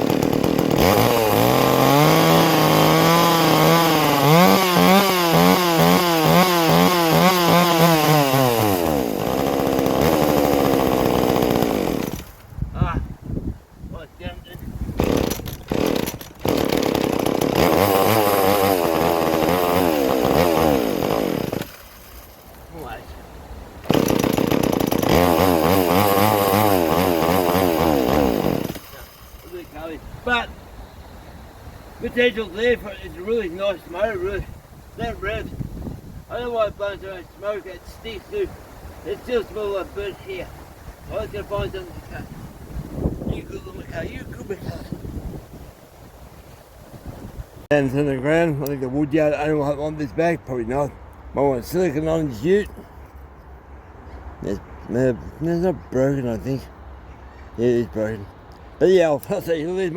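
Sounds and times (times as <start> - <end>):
chainsaw engine revving: 0.0 - 12.4, 15.0 - 23.0, 23.8 - 30.5.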